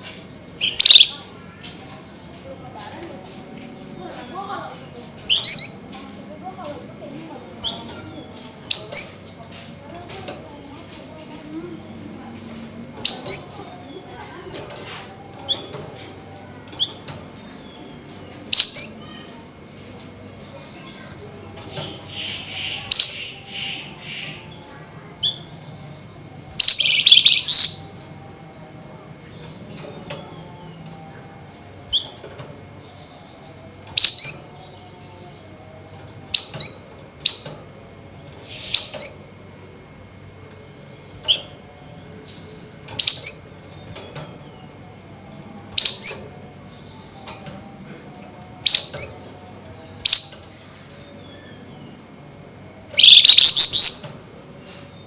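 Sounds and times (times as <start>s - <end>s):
songbird chattering calls: 0.1s - 1.3s, 5.2s - 5.9s, 18.5s - 19.2s, 20.6s - 24.6s, 25.2s - 28.0s, 32.9s - 35.0s, 38.4s - 39.4s, 42.3s - 43.6s, 45.8s - 49.4s, 50.0s - 54.7s.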